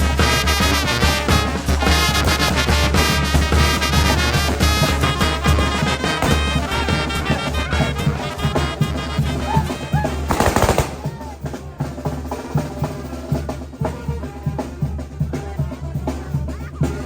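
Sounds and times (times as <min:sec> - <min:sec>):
brass wind band playing: 0:00.0 - 0:16.4
steady drum beat: 0:00.0 - 0:17.0
firecracker bangs: 0:05.4 - 0:07.6, 0:10.3 - 0:11.4.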